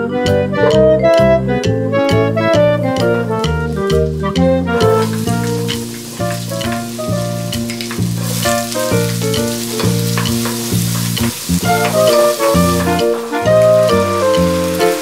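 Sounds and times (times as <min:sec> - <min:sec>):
keyboard and bass music: 0:00.0 - 0:15.0
onion sizzling in butter: 0:03.0 - 0:15.0
wooden spoon stirring: 0:04.8 - 0:15.0.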